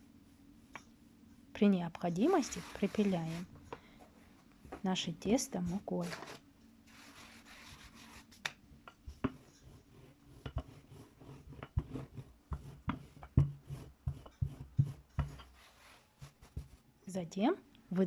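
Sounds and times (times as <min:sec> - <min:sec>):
soft hiss of flour dusting: 0:00.0 - 0:03.6, 0:04.2 - 0:08.6, 0:13.7 - 0:17.1
dough knocking and rubbing: 0:01.6 - 0:03.7, 0:04.6 - 0:16.9.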